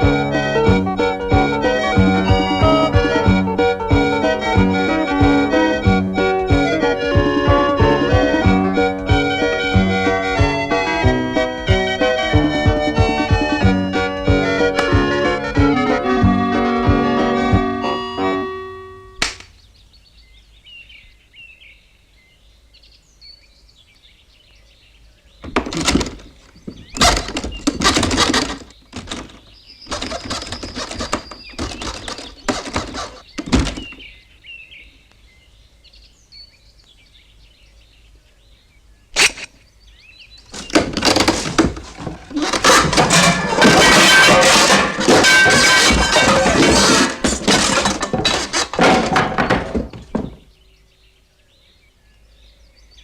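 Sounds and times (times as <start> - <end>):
birds chirping faintly: 19.0 - 53.0
rough noisy bursts: 25.5 - 34.0, 40.5 - 50.3.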